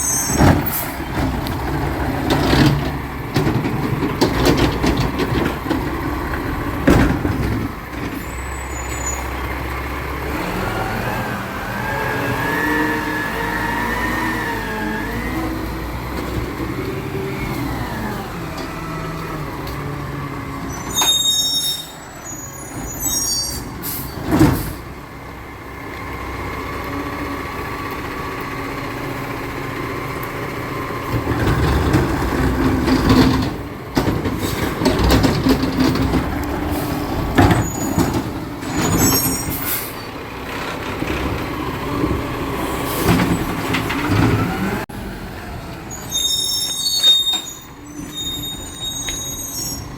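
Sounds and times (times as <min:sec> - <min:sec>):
brake squeal: 0:00.0 - 0:06.0, 0:07.2 - 0:25.0, 0:31.0 - 0:44.9, 0:45.7 - 0:49.9
diesel truck engine running: 0:00.0 - 0:20.8, 0:23.6 - 0:46.9
air brakes hissing: 0:20.6 - 0:24.9, 0:38.8 - 0:40.2.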